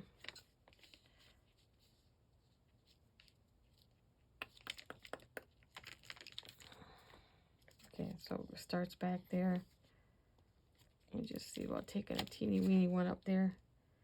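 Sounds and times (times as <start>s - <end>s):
paper rustling and clicking: 4.4s - 6.8s, 10.8s - 12.8s.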